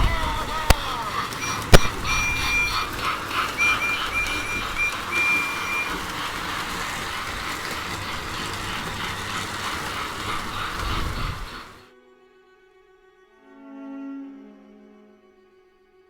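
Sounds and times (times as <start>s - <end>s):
thin high tone: 0.0s - 11.7s
toy train rolling clatter: 0.0s - 11.8s.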